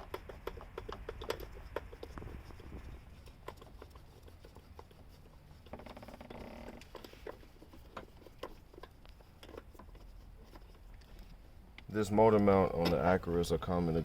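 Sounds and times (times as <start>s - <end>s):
tools clicking and tapping: 0.0s - 2.2s.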